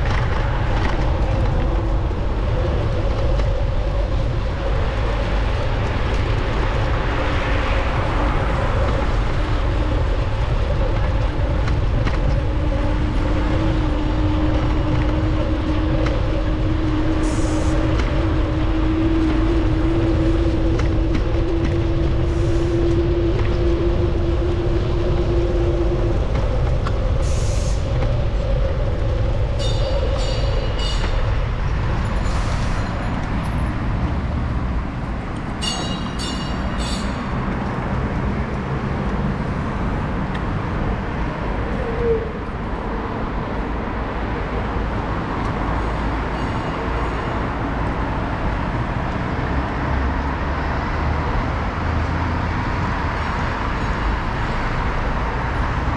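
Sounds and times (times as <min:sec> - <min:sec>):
road rumble: 0:00.0 - 0:55.9
wind on microphone: 0:00.0 - 0:55.9
high ringing pulses: 0:35.6 - 0:37.4.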